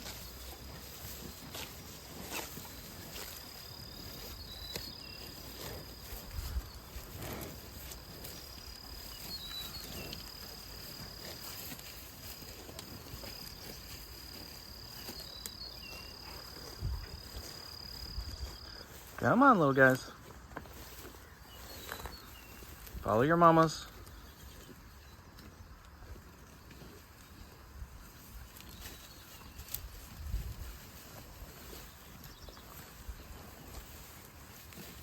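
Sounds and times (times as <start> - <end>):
cricket trilling: 0.0 - 19.1
soft rustles: 0.0 - 19.2, 19.8 - 23.2.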